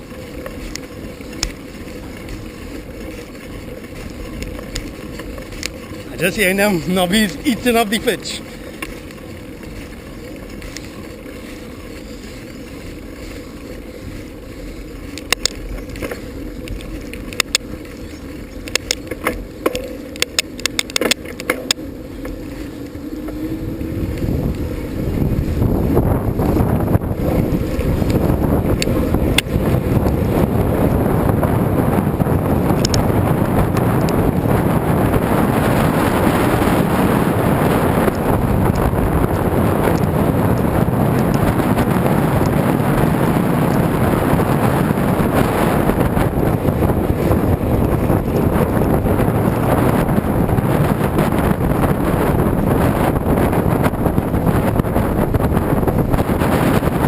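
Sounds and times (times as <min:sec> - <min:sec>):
sharp clicks and rattles: 0:00.0 - 0:22.4, 0:32.7 - 0:33.1
bicycle tyres rolling: 0:00.0 - 0:57.0
wind buffeting microphone: 0:00.0 - 0:57.0.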